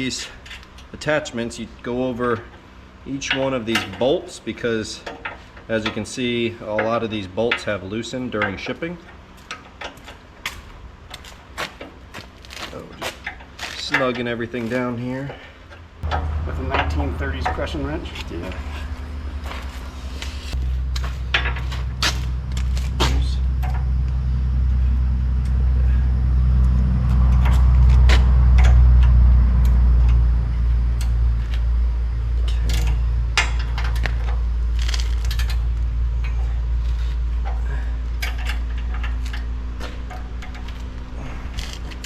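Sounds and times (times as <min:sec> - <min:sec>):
low hum: 0:00.0 - 0:42.0.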